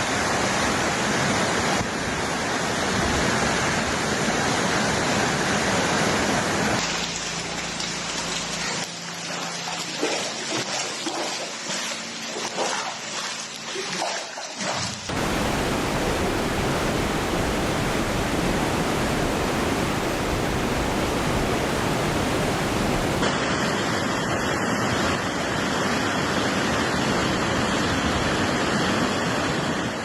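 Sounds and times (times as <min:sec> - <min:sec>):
floodwater rushing: 0:00.0 - 0:25.1.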